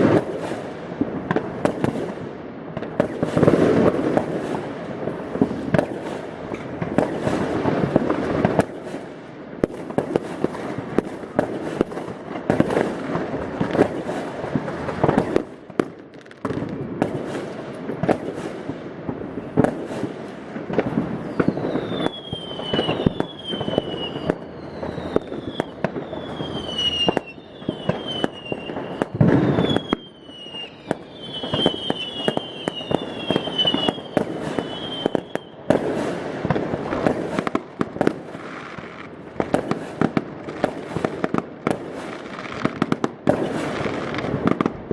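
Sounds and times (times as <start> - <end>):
fireworks bangs and cracks: 0.0 - 44.9
high falling whistles: 21.2 - 35.5.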